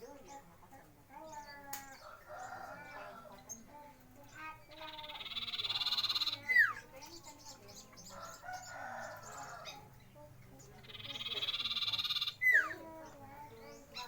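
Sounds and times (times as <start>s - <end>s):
soft bird chattering: 0.0s - 14.0s
bird buzzy trill and whistle: 4.8s - 6.8s, 10.9s - 12.8s.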